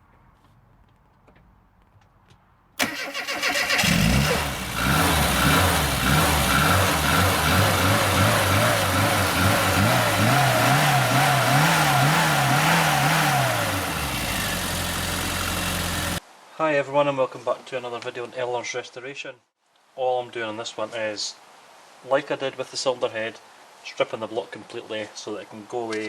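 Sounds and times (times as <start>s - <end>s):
car engine cranking: 2.8s - 16.2s
car engine running wobbling pitch: 4.0s - 16.2s.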